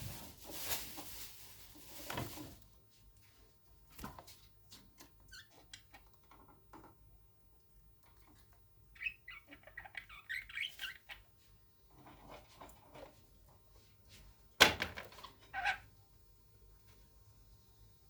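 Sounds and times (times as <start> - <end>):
budgerigar chirping: 9.0 - 11.2.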